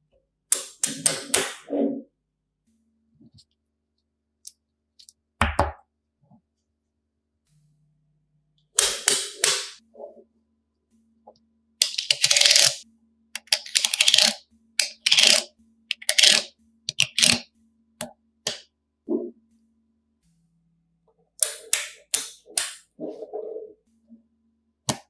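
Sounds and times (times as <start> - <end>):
magnetic building pieces clattering: 11.8 - 12.8, 13.4 - 17.4.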